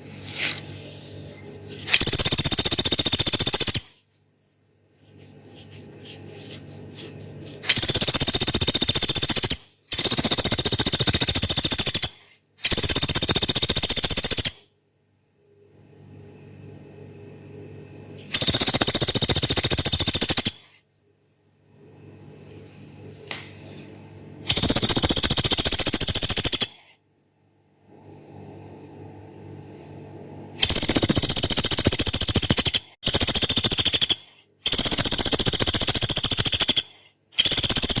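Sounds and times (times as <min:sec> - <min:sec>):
woodpecker rattling trills: 0:01.9 - 0:03.9, 0:07.6 - 0:14.6, 0:18.4 - 0:20.7, 0:24.5 - 0:26.8, 0:30.6 - 0:38.0.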